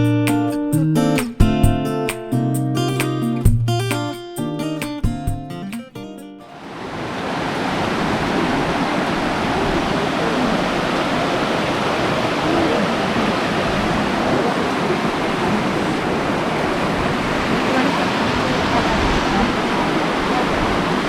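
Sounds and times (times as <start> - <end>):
flowing water rushing: 6.5 - 21.0.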